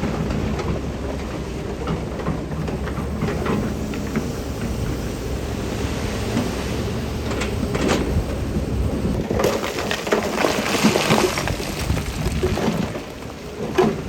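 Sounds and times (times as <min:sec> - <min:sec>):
heavy diesel machine rumble: 0:00.0 - 0:10.2
loose stone rattling and tumbling: 0:09.2 - 0:14.0.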